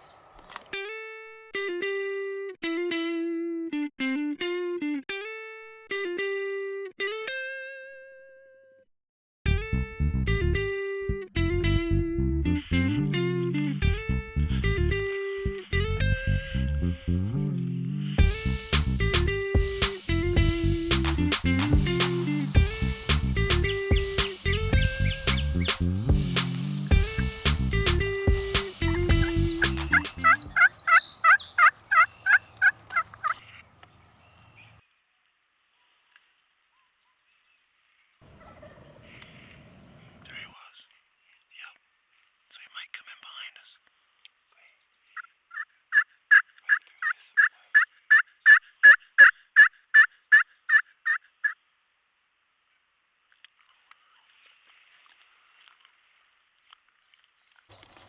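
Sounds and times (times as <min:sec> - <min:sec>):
guitar music: 0:00.8 - 0:08.2, 0:09.5 - 0:30.6
wild turkey calls: 0:29.9 - 0:34.0, 0:38.2 - 0:40.5, 0:45.2 - 0:51.6.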